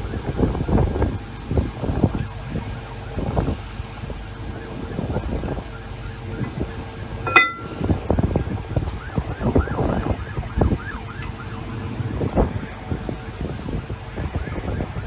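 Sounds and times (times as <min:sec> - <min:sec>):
ringing metal clang: 0:07.3 - 0:07.8.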